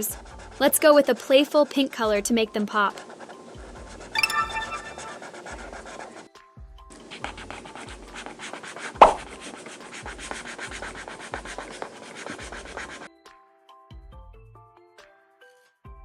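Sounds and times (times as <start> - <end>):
colouring tool scratching paper: 0.0 - 4.1, 5.0 - 13.1.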